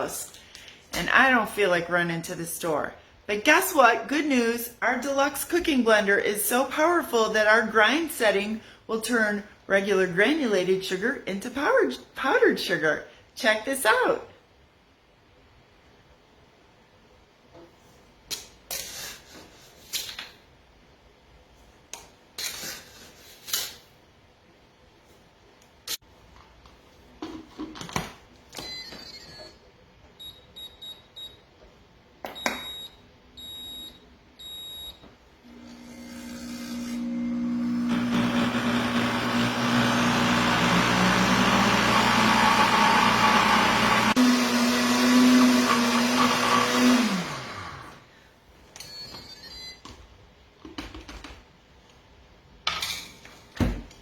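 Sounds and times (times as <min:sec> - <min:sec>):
short beeps and clicks: 0:32.4 - 0:35.0
blender motor grinding: 0:35.5 - 0:48.0.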